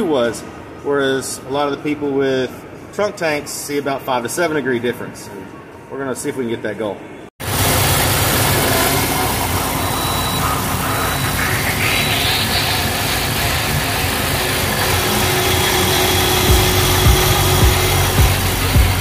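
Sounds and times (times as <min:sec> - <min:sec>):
car engine idling: 0:07.4 - 0:19.0
steady rushing noise: 0:07.4 - 0:19.0
low thumps: 0:15.9 - 0:19.0.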